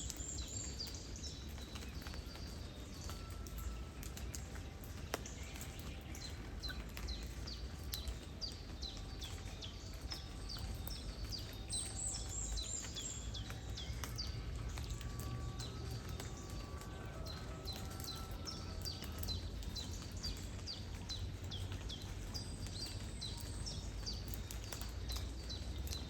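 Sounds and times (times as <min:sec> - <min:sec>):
light rain drop ticks: 0:00.0 - 0:26.0
bird chirping: 0:05.6 - 0:26.0.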